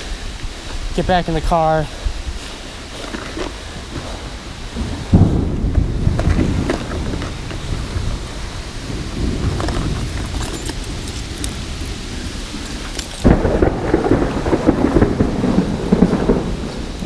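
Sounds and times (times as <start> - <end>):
rain falling: 0.0 - 17.0
low thunder rumble: 3.6 - 17.0.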